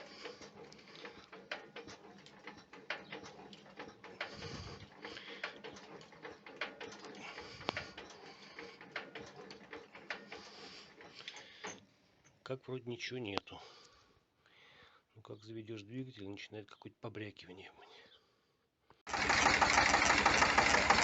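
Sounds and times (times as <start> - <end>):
engine clicks and rattling: 0.0 - 11.8, 19.1 - 21.0.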